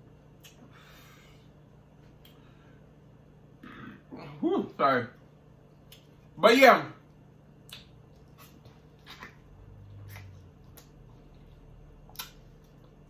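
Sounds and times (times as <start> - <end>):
lip smacks and clicks: 0.3 - 0.7, 5.8 - 6.2, 7.6 - 13.0
person chewing food: 7.6 - 13.0.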